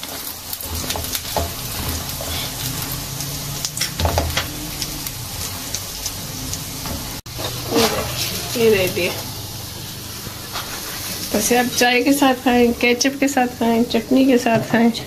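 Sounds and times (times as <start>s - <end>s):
spatula scraping a pan: 0.0s - 4.5s, 7.3s - 9.2s, 10.3s - 11.3s
oil sizzling in a pan: 0.0s - 14.9s.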